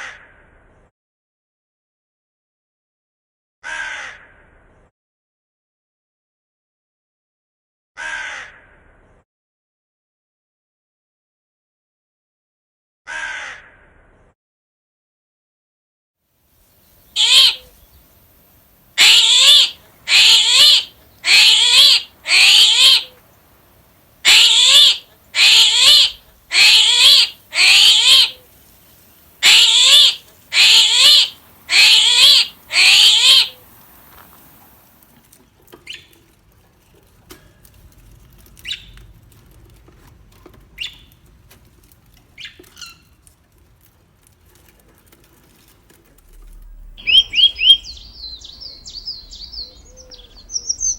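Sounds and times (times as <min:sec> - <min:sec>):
large bird harsh calls: 0:16.9 - 0:18.2, 0:19.0 - 0:34.7, 0:46.8 - 0:50.9.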